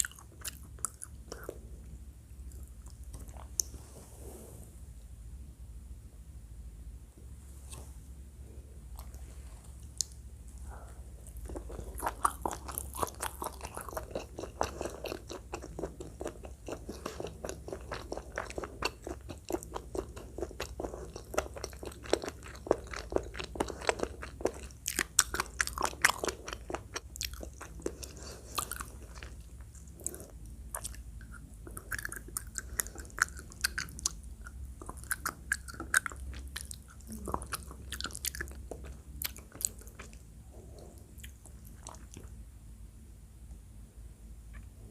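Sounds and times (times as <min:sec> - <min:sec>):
chewing and biting food: 0:00.0 - 0:01.6, 0:02.4 - 0:03.7, 0:09.8 - 0:42.4.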